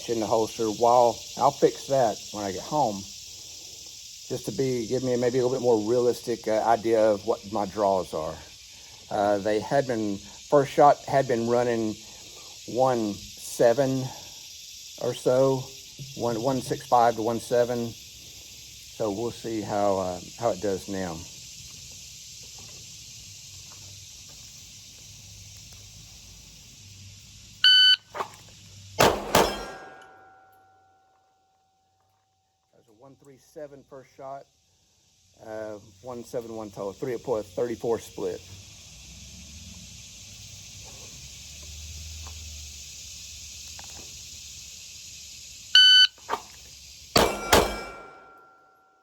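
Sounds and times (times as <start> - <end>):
ringing tone: 27.6 - 28.0
shot timer beep: 27.6 - 28.0, 45.8 - 46.1
handgun shots: 29.0 - 30.3, 47.2 - 48.4.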